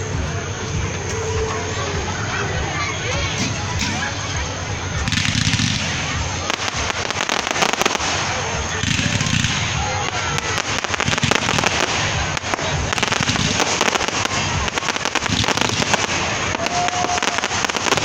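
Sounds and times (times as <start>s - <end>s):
fireworks cracking and popping: 0.0s - 18.0s.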